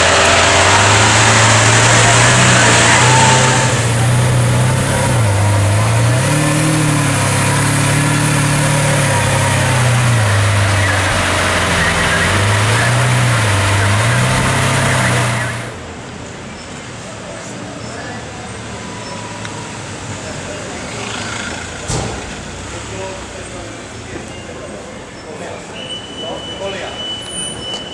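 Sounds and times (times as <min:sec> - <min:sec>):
sports car engine at low revs: 0:00.0 - 0:15.8.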